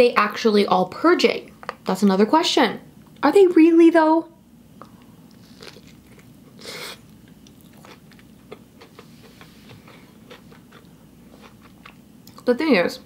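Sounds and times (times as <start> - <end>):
person biting food: 4.8 - 11.9
chewing mouth clicks: 7.0 - 12.5.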